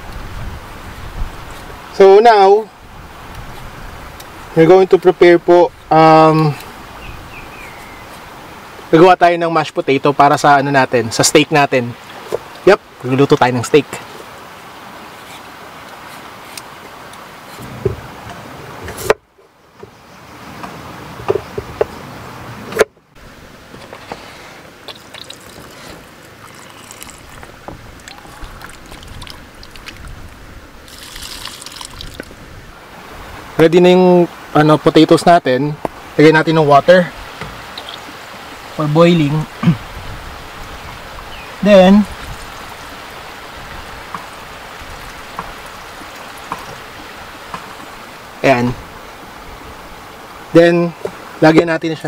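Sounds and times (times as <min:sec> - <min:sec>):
water running into a metal pot: 0:25.0 - 0:29.9, 0:30.9 - 0:32.3.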